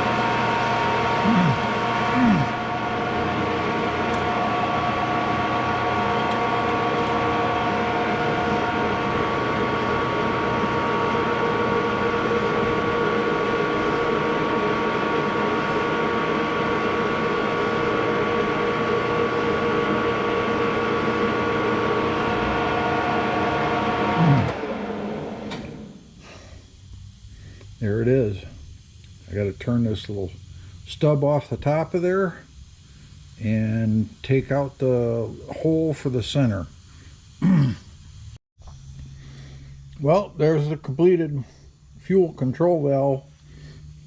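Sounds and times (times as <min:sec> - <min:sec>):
lathe motor hum: 0:00.0 - 0:26.2
lathe spinning down whine: 0:00.0 - 0:26.2.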